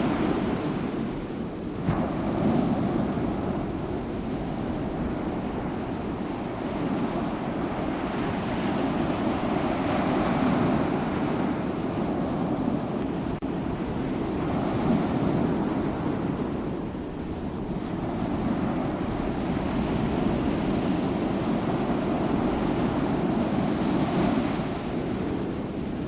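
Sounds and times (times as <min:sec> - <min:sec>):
sea waves rushing: 0:00.0 - 0:26.0.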